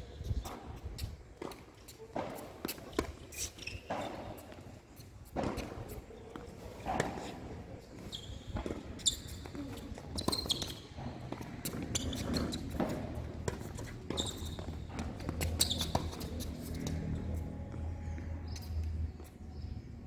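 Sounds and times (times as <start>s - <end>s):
shoes squeaking: 0.0s - 20.0s
tennis balls being hit: 5.3s - 17.4s.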